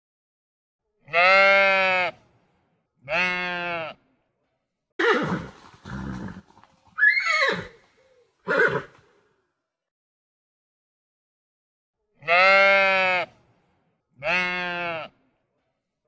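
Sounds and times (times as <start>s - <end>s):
sheep bleating: 1.1s - 2.2s, 3.0s - 4.0s, 12.2s - 13.4s, 14.2s - 15.2s
horse calling: 5.0s - 9.2s.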